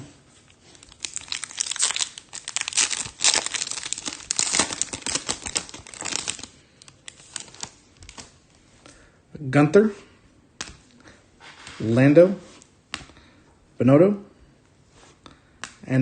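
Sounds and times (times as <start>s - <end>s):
foil wrapper tearing and crinkling: 0.7s - 8.3s.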